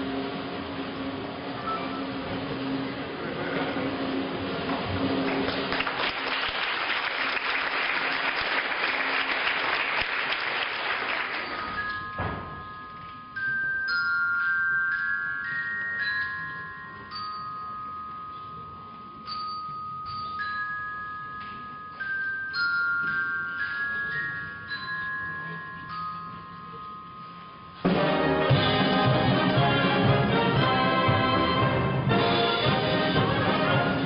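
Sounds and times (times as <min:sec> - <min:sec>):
audience applause: 0:05.2 - 0:11.9
orchestral bells ringing: 0:07.5 - 0:34.0
wind band playing a march: 0:27.9 - 0:34.0.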